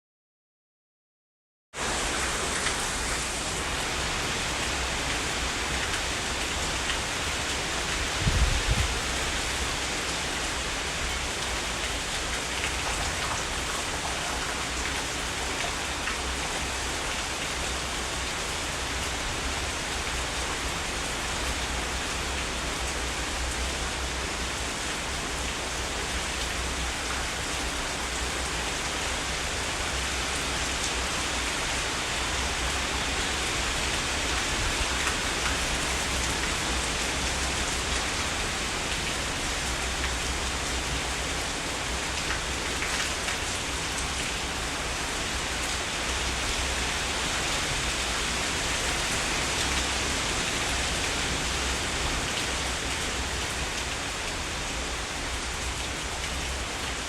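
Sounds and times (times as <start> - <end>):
heavy rain hissing: 1.8 - 11.9.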